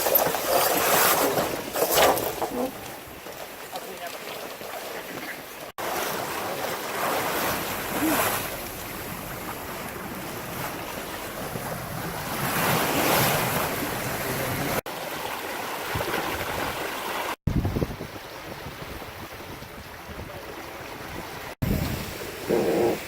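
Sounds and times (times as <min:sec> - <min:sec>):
water rushing past boat hull: 0:00.0 - 0:23.0
wind buffeting microphone: 0:17.5 - 0:23.0.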